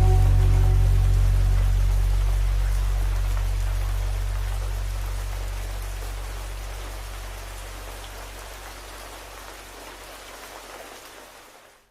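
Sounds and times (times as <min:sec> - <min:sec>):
low sustained hum: 0:00.0 - 0:07.9
steady rain: 0:00.0 - 0:11.9.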